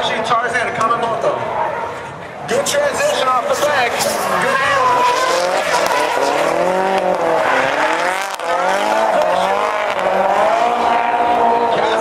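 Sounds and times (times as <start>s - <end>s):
tyres squealing: 2.5s - 10.7s
turbo engine revving hard: 3.1s - 12.0s.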